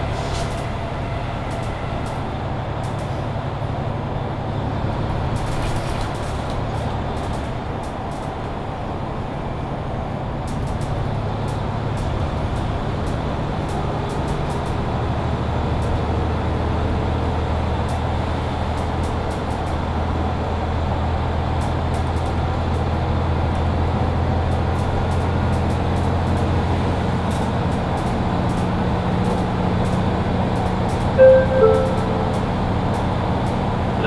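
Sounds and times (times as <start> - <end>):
bus engine and road noise hum: 0.0 - 34.0
two-tone chime: 31.2 - 32.9.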